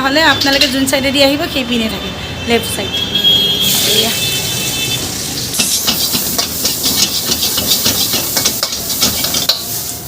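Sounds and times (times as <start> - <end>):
metal spatula scraping a wok: 3.6 - 9.9
noodles sizzling in a wok: 3.6 - 10.0.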